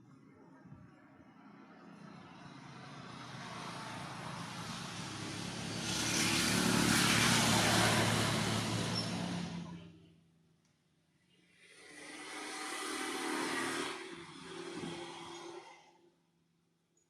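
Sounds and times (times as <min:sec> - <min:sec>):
vehicle passing by: 0:01.3 - 0:09.9.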